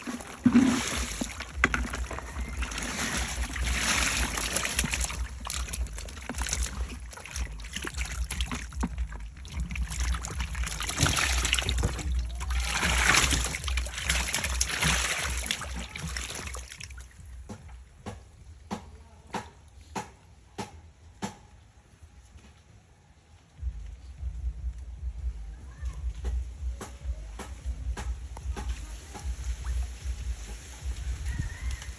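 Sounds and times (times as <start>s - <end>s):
steady low rumble: 0.0s - 18.0s, 23.6s - 31.5s
water splashing and sloshing: 0.0s - 18.9s, 27.4s - 31.9s.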